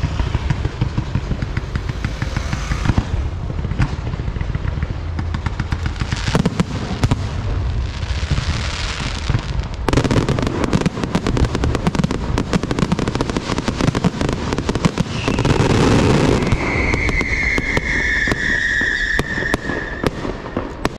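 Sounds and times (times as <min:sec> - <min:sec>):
rapid crackling and popping: 0:00.0 - 0:20.9
high whistling tone: 0:15.1 - 0:20.1.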